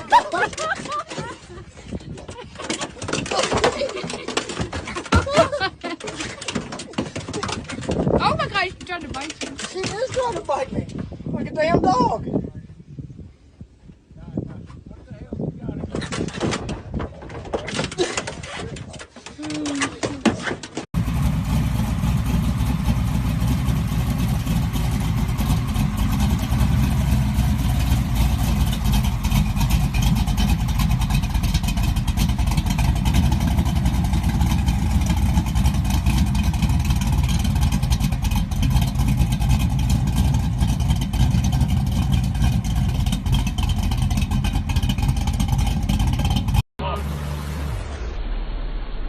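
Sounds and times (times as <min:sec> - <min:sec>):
truck engine running: 0:21.0 - 0:48.0.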